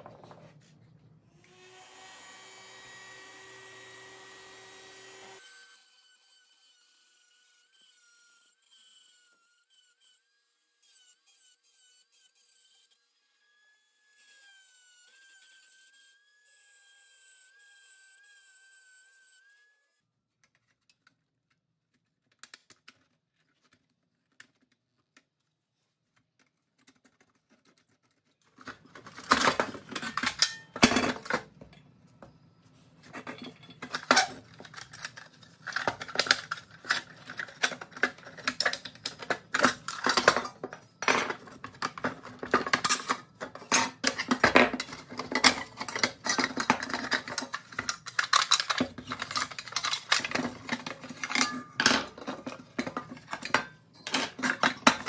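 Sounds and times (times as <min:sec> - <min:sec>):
metal toy parts clinking: 0:45.1 - 0:52.0.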